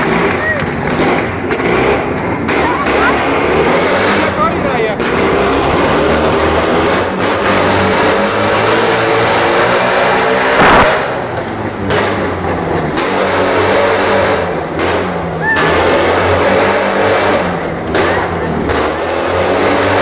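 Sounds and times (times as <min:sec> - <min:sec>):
motorcycle engine revving: 0:00.0 - 0:20.0
loud burst of noise: 0:09.2 - 0:12.3.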